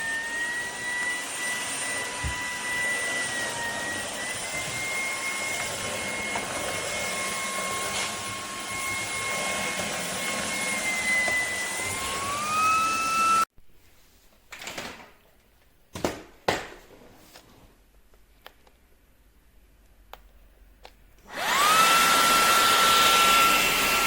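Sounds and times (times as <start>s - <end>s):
vacuum motor whining: 0.0s - 13.5s, 21.3s - 24.0s.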